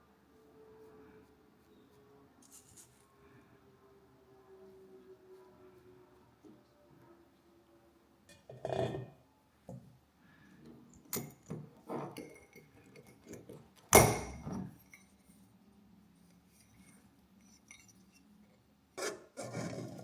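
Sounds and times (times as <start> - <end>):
glassware clinking: 11.1 - 13.1, 14.0 - 15.1.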